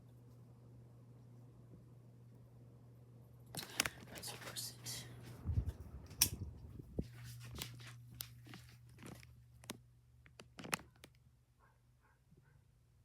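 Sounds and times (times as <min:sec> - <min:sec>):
fan motor hum: 0:00.0 - 0:11.5
ceiling fan switch clicks: 0:05.6 - 0:06.7.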